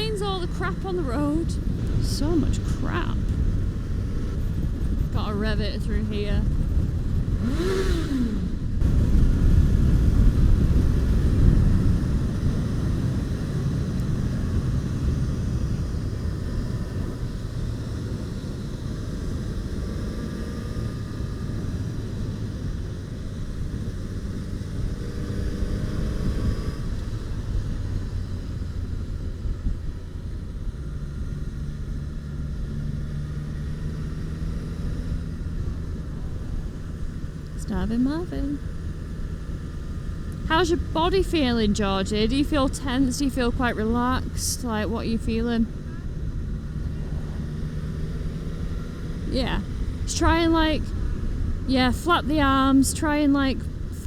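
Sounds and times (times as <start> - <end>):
motorcycle engine revving: 0.0 - 54.0
wind rush: 1.4 - 17.2.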